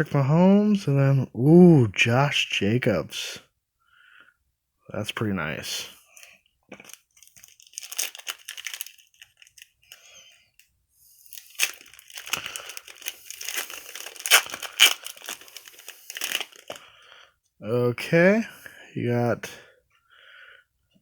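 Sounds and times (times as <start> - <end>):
foil wrapper crinkling and tearing: 6.2 - 10.3, 11.2 - 16.9.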